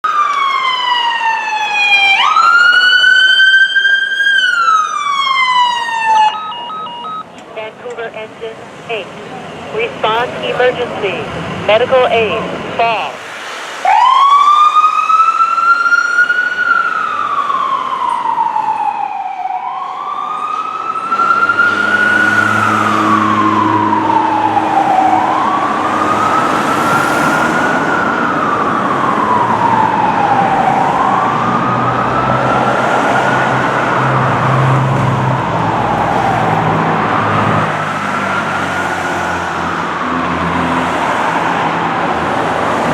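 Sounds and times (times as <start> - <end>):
electronic siren wailing: 1.3 - 7.2.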